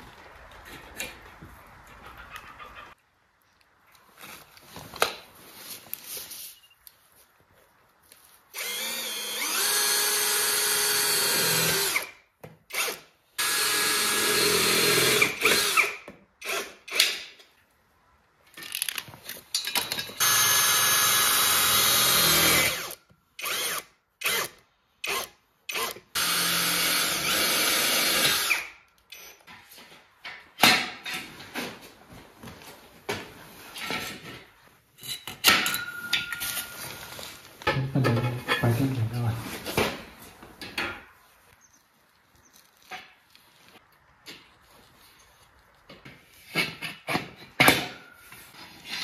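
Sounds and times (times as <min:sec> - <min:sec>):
power drill driving screws: 0:08.5 - 0:17.3, 0:20.2 - 0:29.3.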